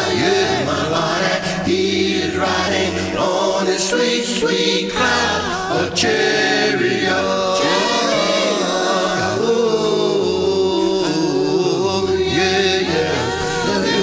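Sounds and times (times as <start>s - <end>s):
a cappella gospel singing: 0.0s - 14.0s.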